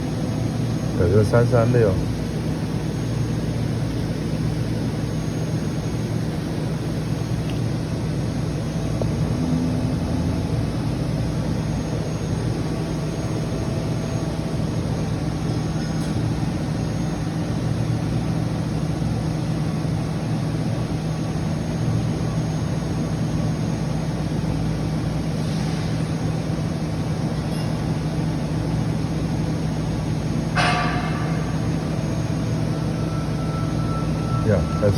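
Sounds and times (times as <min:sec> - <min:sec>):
electrical hum: 0:00.0 - 0:25.4, 0:26.1 - 0:34.9.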